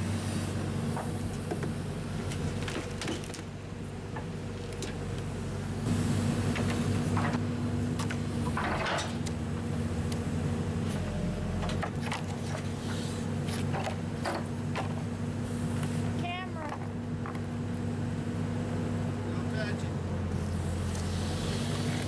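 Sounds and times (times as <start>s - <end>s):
engine running steadily: 0.0s - 22.0s
knocks and clattering: 8.0s - 9.2s.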